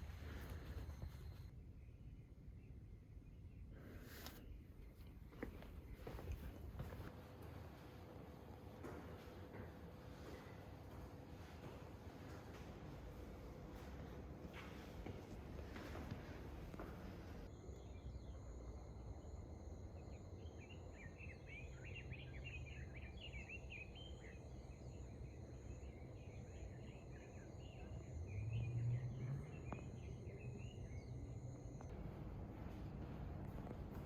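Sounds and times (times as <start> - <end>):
small birds chirping: 20.0 - 31.9.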